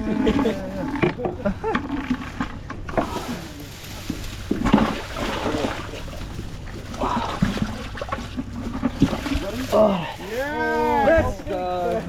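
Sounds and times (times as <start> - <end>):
indistinct voices: 0.0 - 2.2, 6.9 - 7.8
splashing in shallow water: 2.2 - 10.3.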